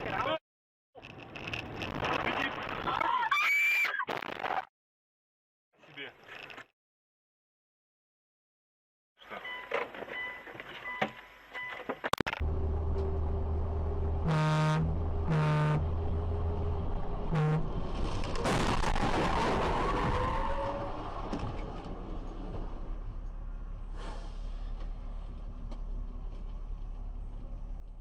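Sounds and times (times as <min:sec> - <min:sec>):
engine droning: 0:12.4 - 0:18.4
car horn honking: 0:14.2 - 0:16.0, 0:17.3 - 0:17.7.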